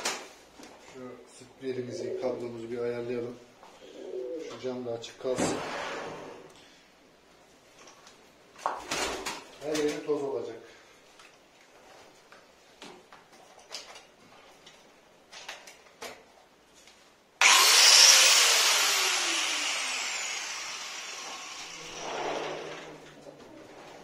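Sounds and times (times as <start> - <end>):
power tool whining: 17.4 - 22.9.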